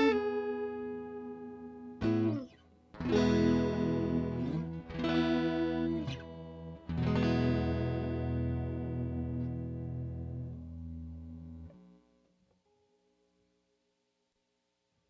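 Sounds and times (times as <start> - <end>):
electric guitar chords with flanger: 0.0 - 11.8.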